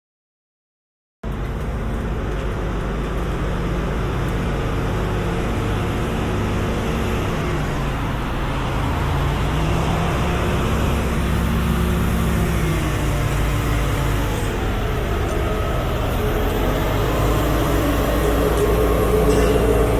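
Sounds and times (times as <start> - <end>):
construction machinery engine rumble: 1.2 - 19.9
droning hum tones: 9.9 - 19.9.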